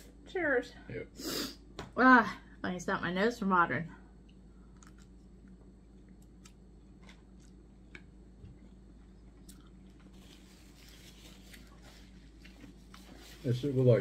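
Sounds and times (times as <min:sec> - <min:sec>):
chewing noodles: 0:04.7 - 0:10.5.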